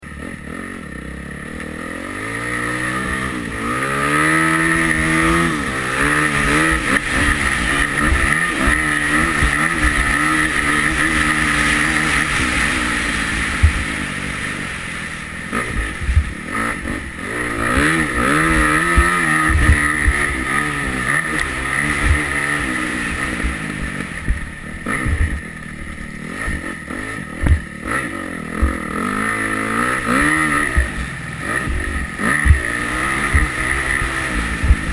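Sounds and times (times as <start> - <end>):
motocross engine revving: 0.0 - 34.9
short thumps: 13.5 - 14.0, 15.7 - 17.0, 17.8 - 20.4, 23.3 - 25.6, 27.4 - 27.9, 28.5 - 28.9, 31.6 - 34.9.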